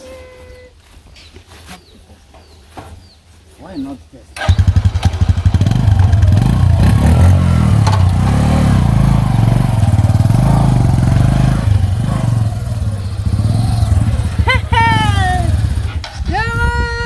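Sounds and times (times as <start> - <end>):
motorcycle engine revving: 4.4 - 16.3.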